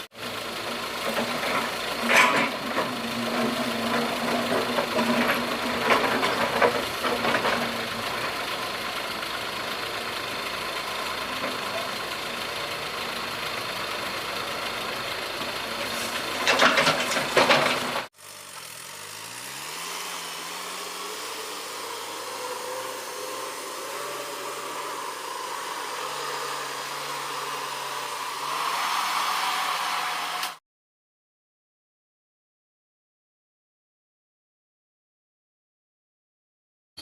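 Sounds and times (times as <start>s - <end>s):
excavator diesel engine: 0.0s - 30.6s
loud clattering: 1.0s - 8.4s, 15.8s - 18.1s.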